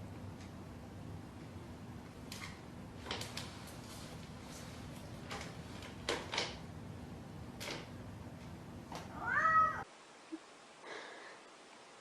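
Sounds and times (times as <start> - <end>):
cat meowing: 9.1 - 9.9.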